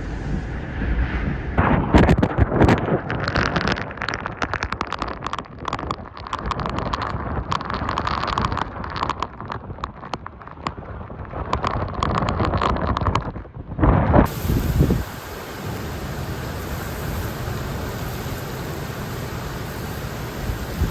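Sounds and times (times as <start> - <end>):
wind rushing: 14.0 - 20.9
raindrops striking microphone: 14.2 - 20.9.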